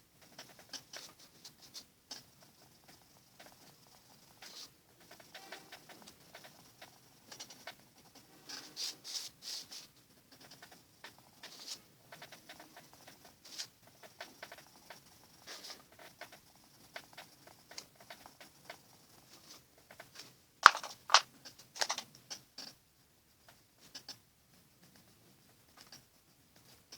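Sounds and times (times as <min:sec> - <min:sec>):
pencil scratching on paper: 0:00.3 - 0:21.2
sharp clicks: 0:20.6 - 0:21.2, 0:21.8 - 0:22.1.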